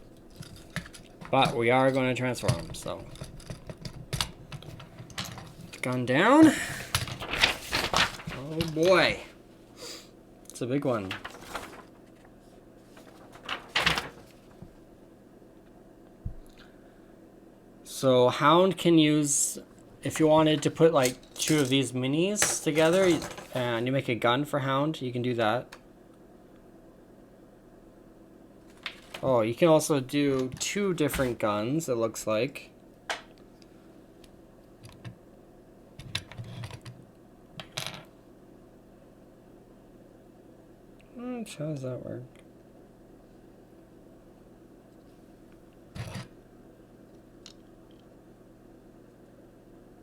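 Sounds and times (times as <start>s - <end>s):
plastic action figure clicks and rustles: 21.0s - 21.8s.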